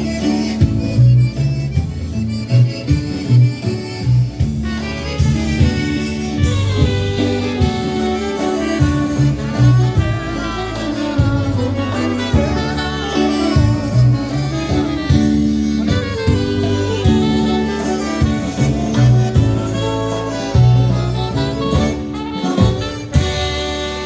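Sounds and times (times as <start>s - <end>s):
polka band playing a waltz: 0.0s - 24.0s.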